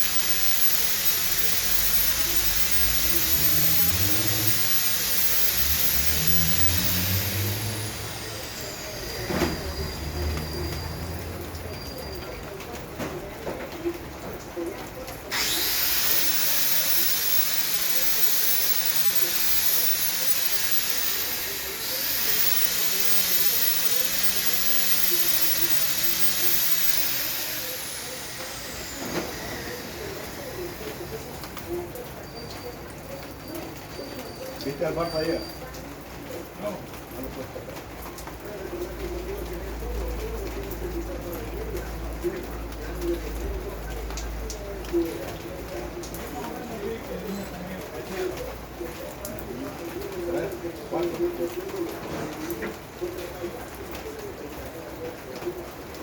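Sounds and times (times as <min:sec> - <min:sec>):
thin high tone sliding down: 0:00.0 - 0:12.0, 0:15.3 - 0:31.8
heavy rain hissing: 0:00.0 - 0:12.1, 0:15.4 - 0:32.0
steady rain falling: 0:27.6 - 0:56.0.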